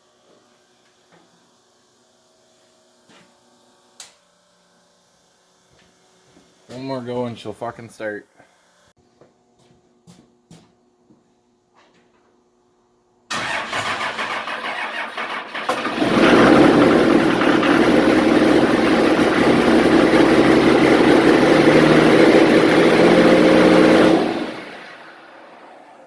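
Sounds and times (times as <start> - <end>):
diesel truck engine cranking: 13.3 - 25.4
diesel engine running loud: 15.5 - 26.0.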